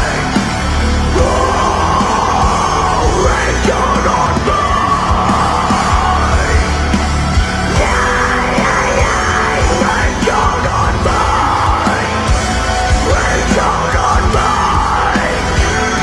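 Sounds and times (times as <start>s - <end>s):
heavy rock music: 0.0s - 16.0s.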